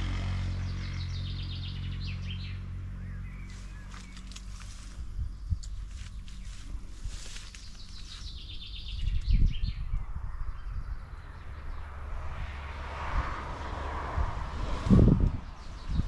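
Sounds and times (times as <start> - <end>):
low rumbling noise: 0.0 - 16.0
bird chirping trill: 0.4 - 6.6, 7.2 - 12.1, 15.3 - 16.0.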